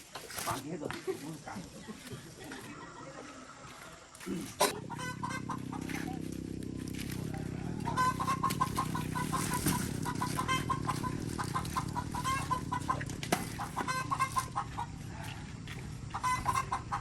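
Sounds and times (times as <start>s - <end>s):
chickens clucking: 0.5s - 17.0s
steady low hum: 4.3s - 17.0s.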